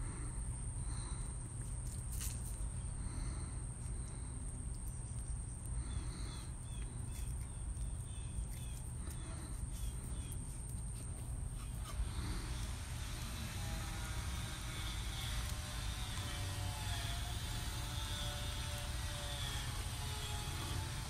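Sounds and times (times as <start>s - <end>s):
high-pitched insect-like whine: 11.5s - 21.0s.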